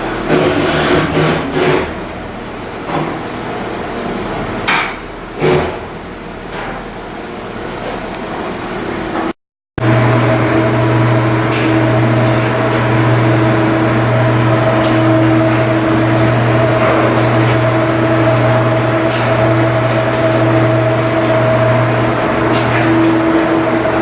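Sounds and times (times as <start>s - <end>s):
machinery drone with low hum: 9.8s - 24.0s.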